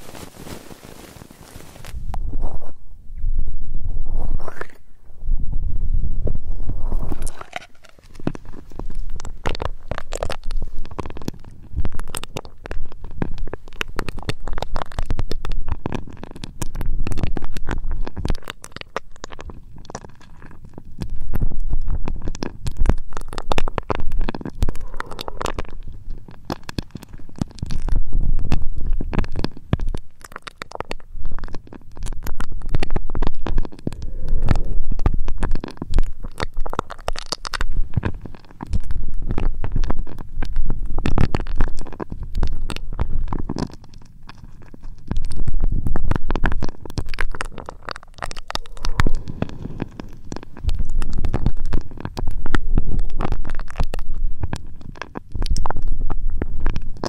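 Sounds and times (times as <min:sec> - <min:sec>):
rubbing and scratching on microphone: 0:00.0 - 0:57.0
low rumble: 0:01.9 - 0:11.0, 0:32.1 - 0:36.9.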